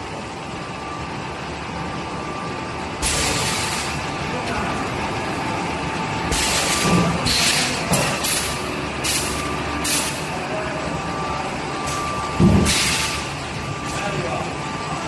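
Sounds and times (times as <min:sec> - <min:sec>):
packaging machine humming: 0:00.0 - 0:15.0
pneumatic air hisses: 0:03.0 - 0:03.9, 0:06.3 - 0:10.2, 0:12.6 - 0:13.3
machine thump: 0:12.4 - 0:13.0.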